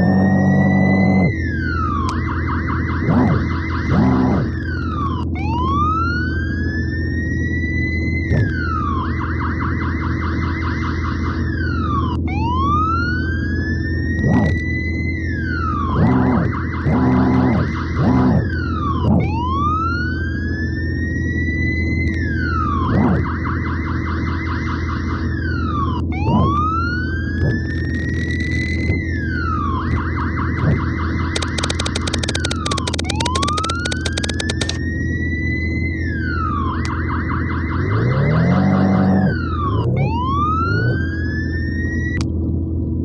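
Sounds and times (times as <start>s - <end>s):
electronic toy siren: 0.0s - 42.2s
low electronic hum: 0.0s - 43.0s
fast crackling: 27.6s - 28.9s, 30.6s - 34.8s.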